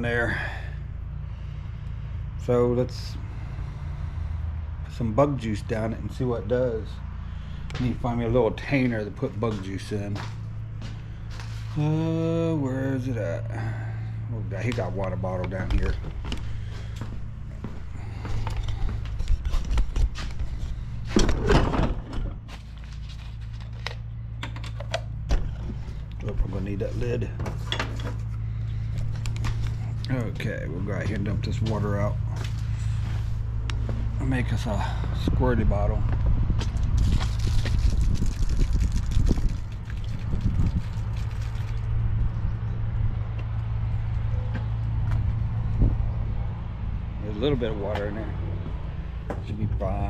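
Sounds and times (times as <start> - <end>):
steady low hum: 0.0 - 50.0
rustling and scraping: 9.6 - 11.8, 15.6 - 34.2
water pouring and splashing on ground: 37.0 - 42.0.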